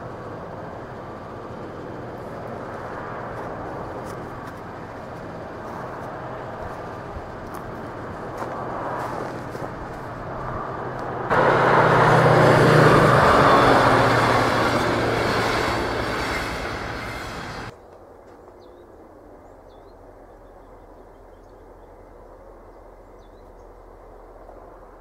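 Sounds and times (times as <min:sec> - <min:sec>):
train coaches rumbling past: 0:00.0 - 0:17.8
diesel locomotive drone: 0:00.0 - 0:25.0.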